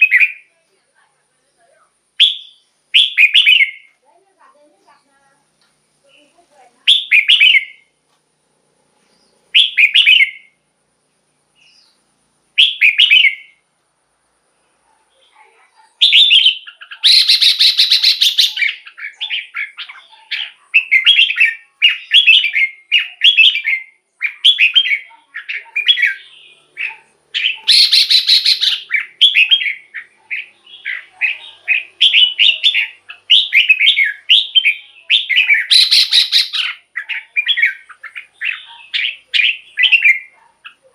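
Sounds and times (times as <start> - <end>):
bulbul singing: 0.0 - 0.5, 2.2 - 4.0, 6.1 - 7.9, 9.1 - 10.6, 11.5 - 13.6, 16.0 - 40.9
harsh rattling bird calls: 2.2 - 3.9, 11.5 - 13.7, 15.1 - 40.9.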